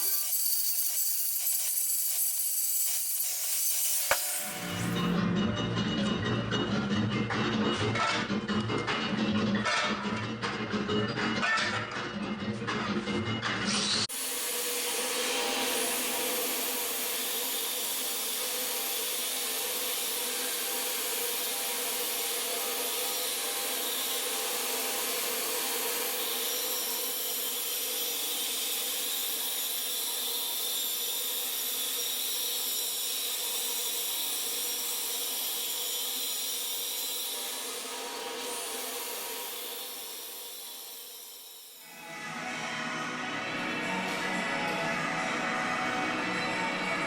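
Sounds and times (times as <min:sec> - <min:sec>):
power tool whining: 0:00.0 - 0:05.1.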